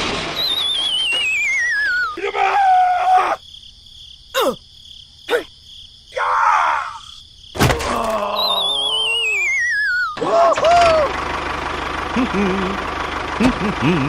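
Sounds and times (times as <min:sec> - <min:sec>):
squeaky chirps: 0:00.3 - 0:02.2, 0:08.1 - 0:11.0
falling wavering whistle: 0:00.4 - 0:02.2, 0:08.4 - 0:10.2
sharp thud: 0:07.6 - 0:08.2.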